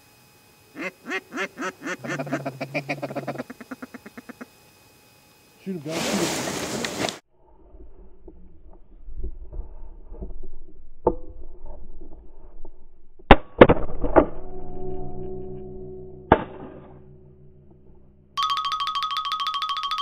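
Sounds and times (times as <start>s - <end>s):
music: 18.4s - 20.0s.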